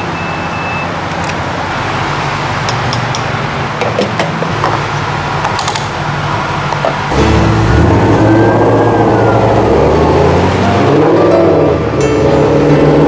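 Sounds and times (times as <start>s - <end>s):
high beep: 0.0s - 0.9s
car engine idling: 1.2s - 13.0s.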